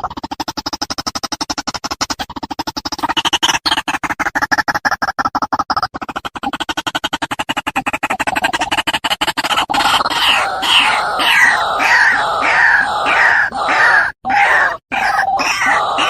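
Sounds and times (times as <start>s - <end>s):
waterhen croaking calls: 9.7s - 16.0s.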